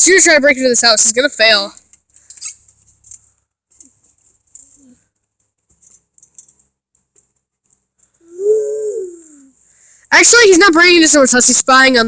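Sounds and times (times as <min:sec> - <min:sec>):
small objects clicking and rattling: 0:01.8 - 0:08.2.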